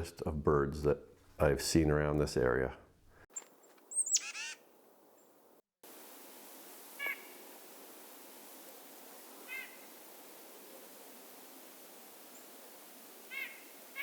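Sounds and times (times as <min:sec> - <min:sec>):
short bird calls: 0:03.4 - 0:04.6, 0:07.0 - 0:07.4, 0:09.4 - 0:09.9, 0:13.3 - 0:14.0
steady outdoor hiss: 0:04.1 - 0:14.0.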